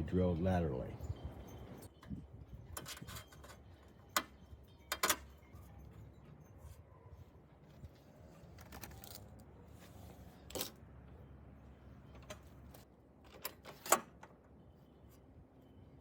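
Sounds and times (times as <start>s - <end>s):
clicks and clinks of tools: 1.8s - 6.8s.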